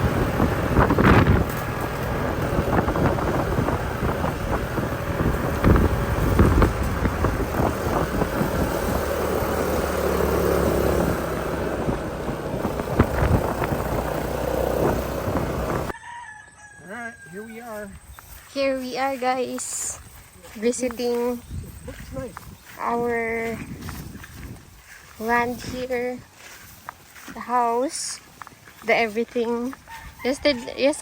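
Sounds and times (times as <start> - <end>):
vehicle on rough road: 0.0 - 16.0, 17.4 - 31.0
wind on microphone: 0.0 - 16.0, 19.8 - 26.8
rooster crowing: 15.9 - 17.9, 29.8 - 31.0.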